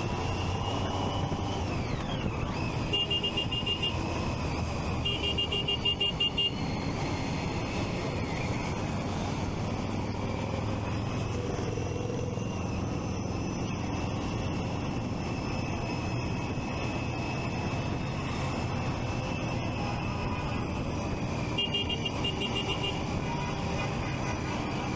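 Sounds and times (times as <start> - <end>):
road traffic noise: 0.0 - 24.9.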